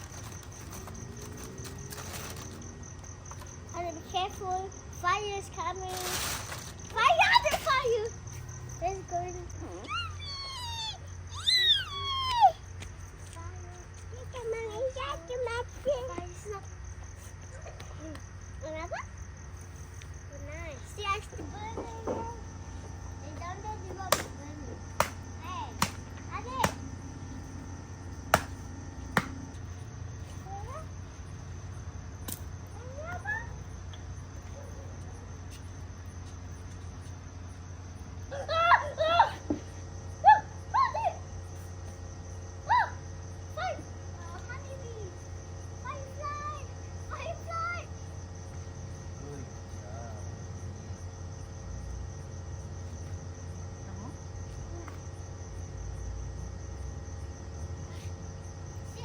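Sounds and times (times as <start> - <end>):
low steady rumble: 0.0 - 41.6
crickets chirping: 0.0 - 59.0
night insects trilling: 0.0 - 59.0
faint rising calls: 8.6 - 12.7
campfire pops: 24.0 - 27.0, 28.2 - 29.6.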